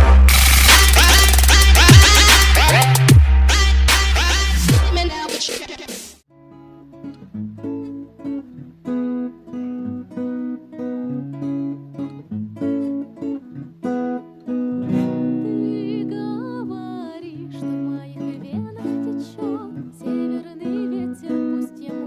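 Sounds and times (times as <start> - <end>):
acoustic guitar melody: 6.3 - 22.0.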